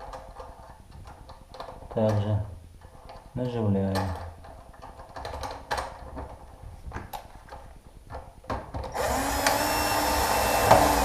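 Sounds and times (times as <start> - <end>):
handling clicks and knocks: 0.0 - 9.0
power screwdriver running: 8.9 - 11.0.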